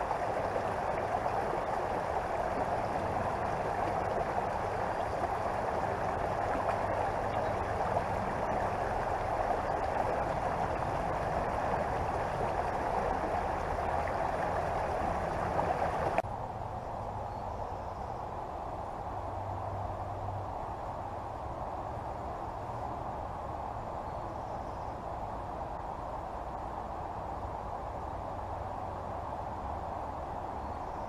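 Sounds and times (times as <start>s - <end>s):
creek water gurgling: 0.0s - 16.6s.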